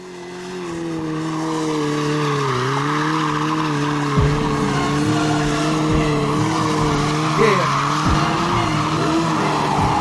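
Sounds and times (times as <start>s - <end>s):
motorcycle engine at high revs: 0.0s - 10.0s
sharp thump: 4.2s - 7.2s.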